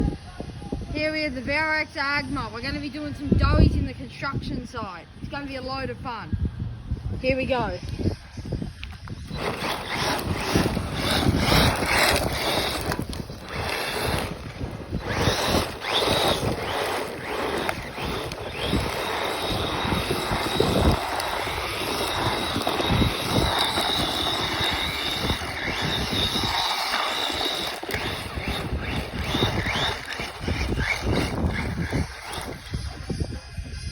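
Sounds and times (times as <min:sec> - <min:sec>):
electric motor whining: 0:08.8 - 0:33.9
tyres sliding on ground: 0:08.9 - 0:33.6.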